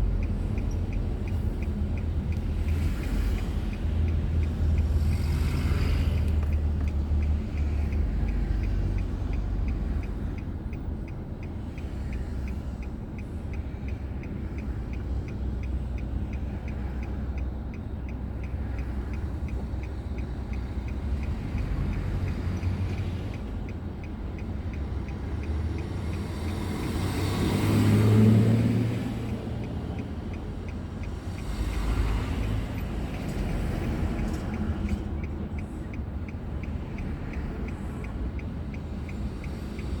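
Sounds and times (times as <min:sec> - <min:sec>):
faint regular ticking: 0:00.0 - 0:27.5, 0:29.0 - 0:40.0
car engine and tyres rumbling: 0:00.0 - 0:40.0
vehicle passing close by: 0:25.9 - 0:29.3.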